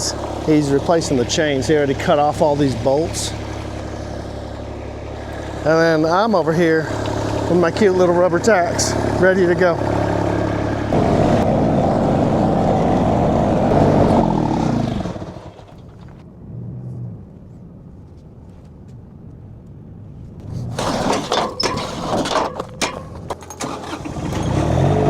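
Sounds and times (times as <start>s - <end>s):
machine engine running: 0.0s - 16.2s
metal knocks and clanks: 20.8s - 23.8s.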